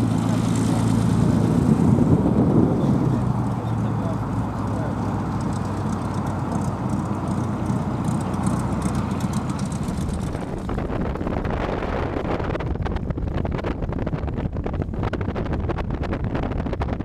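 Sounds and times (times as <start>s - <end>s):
aircraft piston engine running: 0.0s - 11.2s
wind noise on microphone: 0.0s - 17.0s.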